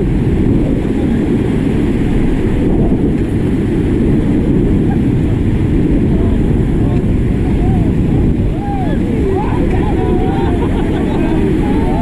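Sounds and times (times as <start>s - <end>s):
rushing river water: 0.0s - 12.0s
wind buffeting microphone: 0.0s - 12.0s
faint voices shouting: 7.4s - 12.0s.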